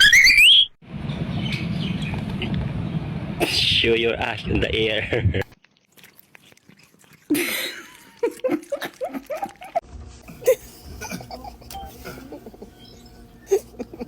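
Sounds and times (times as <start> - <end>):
person laughing: 7.3 - 14.0.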